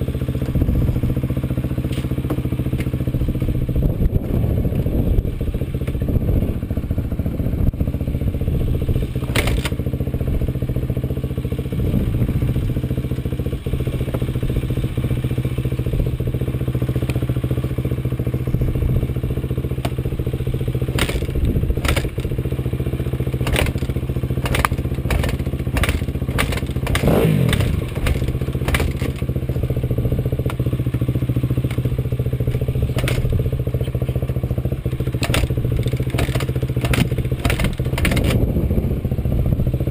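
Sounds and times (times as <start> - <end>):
off-road vehicle engine running: 0.0 - 39.9
sharp knocks and rattles: 9.2 - 9.8, 20.8 - 22.4, 23.3 - 29.6, 31.6 - 38.5.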